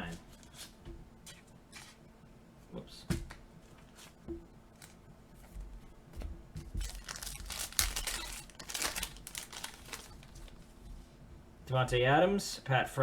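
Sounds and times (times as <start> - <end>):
wrapper tearing and crinkling: 6.8 - 10.6.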